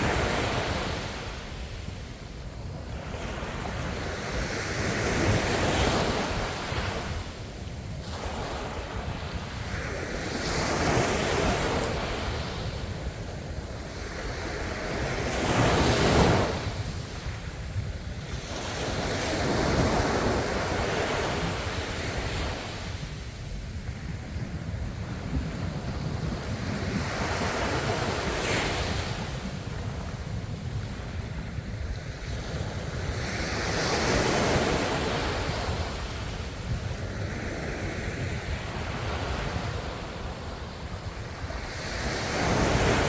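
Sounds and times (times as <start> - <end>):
ocean waves breaking on shore: 0.0 - 43.0.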